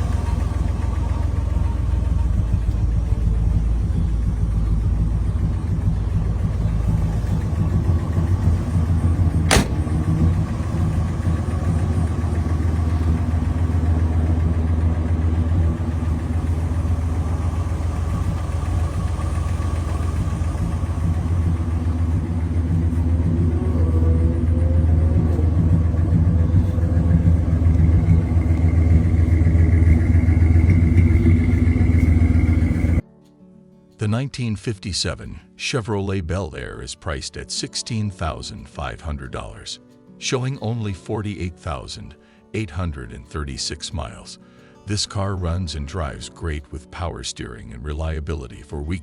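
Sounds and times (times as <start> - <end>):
car engine idling: 0.0 - 33.0
sharp click: 9.5 - 9.9.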